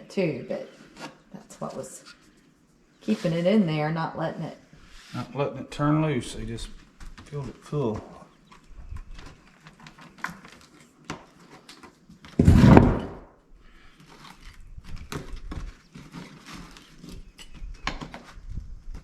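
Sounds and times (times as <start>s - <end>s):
loud thud and scrape: 12.4s - 13.3s.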